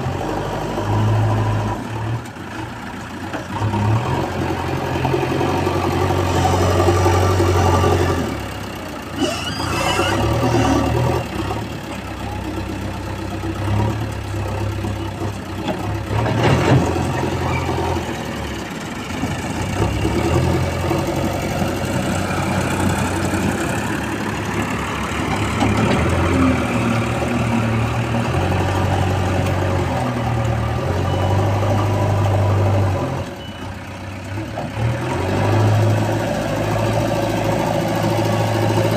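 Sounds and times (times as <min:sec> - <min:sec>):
backhoe diesel engine revving: 0:00.0 - 0:38.9.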